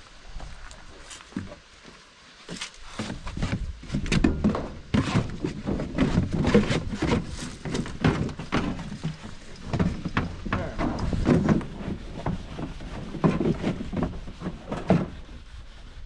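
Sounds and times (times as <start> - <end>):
sandpaper rubbing scratchy strokes: 11.1 - 16.0.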